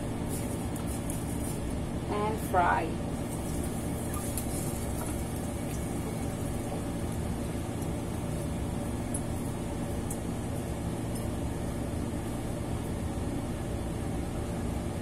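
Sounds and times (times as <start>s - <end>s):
low mechanical hum: 0.0s - 15.0s
food frying in hot oil: 2.9s - 12.8s.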